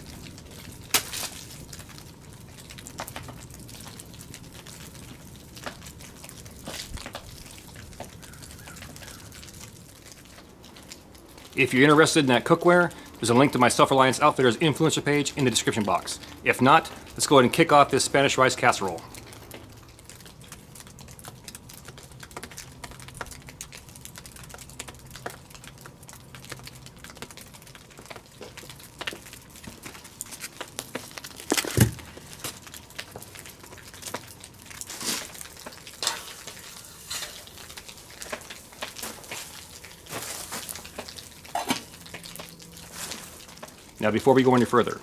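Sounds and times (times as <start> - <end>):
metal cookware clinking: 36.0 - 38.0, 41.5 - 42.0.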